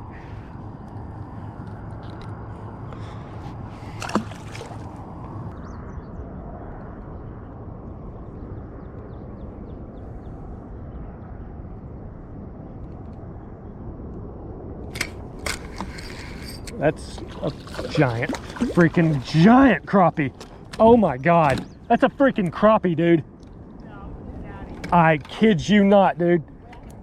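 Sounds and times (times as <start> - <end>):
water sloshing around boat: 0.0 - 5.5, 15.0 - 22.8, 23.4 - 27.0
steady low rumble: 0.0 - 27.0.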